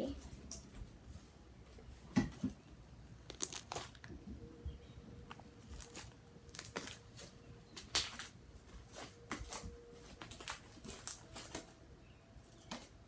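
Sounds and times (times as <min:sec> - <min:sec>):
slime squished by hand: 0:03.2 - 0:04.2.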